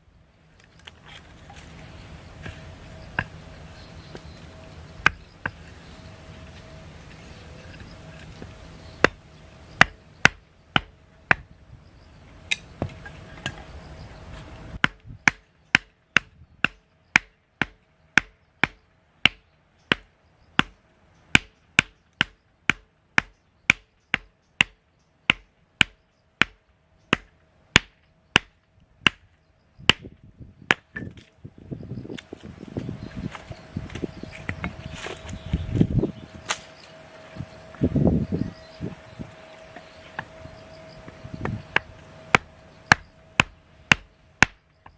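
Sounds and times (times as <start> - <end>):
hatchet chopping firewood: 2.4 - 3.4, 5.0 - 5.8, 8.2 - 9.2, 9.8 - 11.5, 14.8 - 31.3, 41.4 - 44.9.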